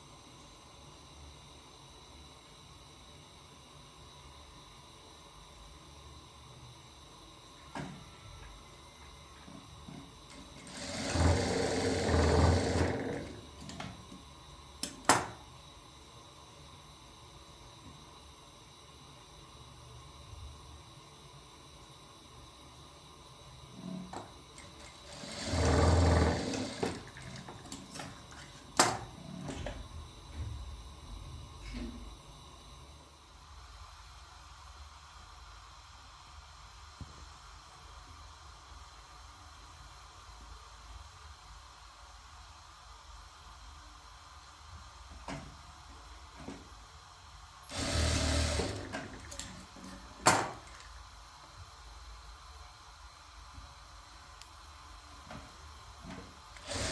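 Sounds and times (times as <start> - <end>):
sewing machine running: 10.3 - 13.9, 24.6 - 29.6, 47.7 - 50.8, 56.5 - 56.9.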